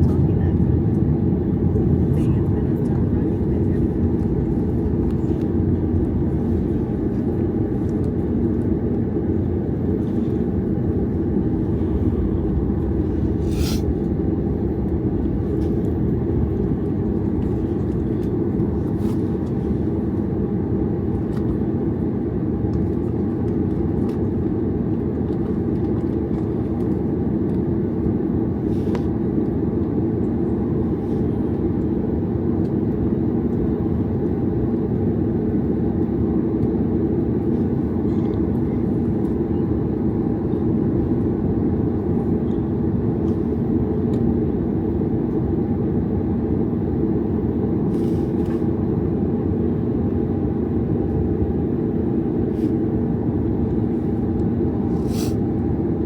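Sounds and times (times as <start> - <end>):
airliner cabin rumble and hum: 0.0 - 56.0.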